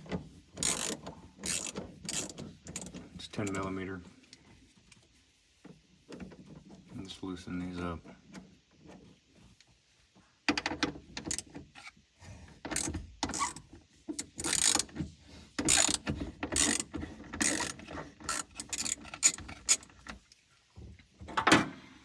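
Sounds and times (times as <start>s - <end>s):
socket ratchet clicking: 0.6s - 3.6s, 11.2s - 11.5s, 12.7s - 13.6s, 14.2s - 14.9s, 15.6s - 19.9s.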